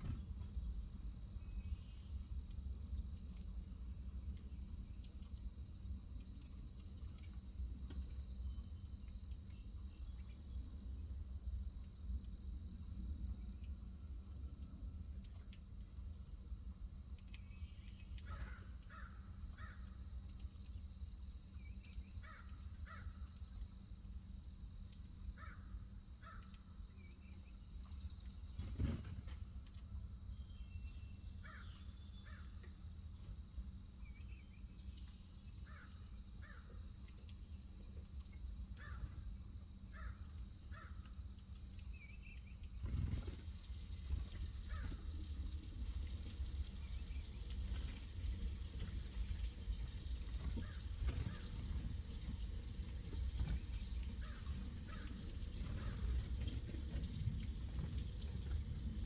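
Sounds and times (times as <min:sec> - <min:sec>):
birds calling: 0:17.7 - 0:23.8, 0:34.3 - 0:39.2, 0:42.8 - 0:59.0
high insect drone: 0:48.6 - 0:59.0.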